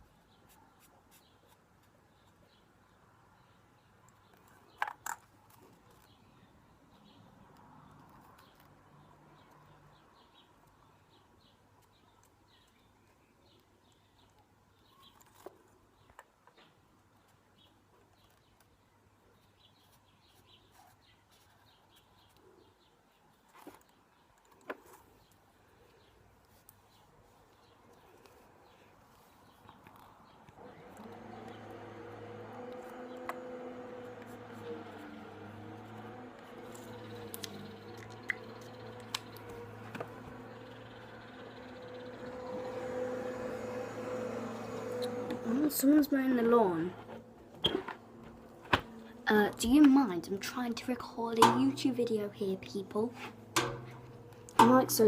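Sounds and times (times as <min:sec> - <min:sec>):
distant lawn mower engine drone: 0:30.6 - 0:55.0.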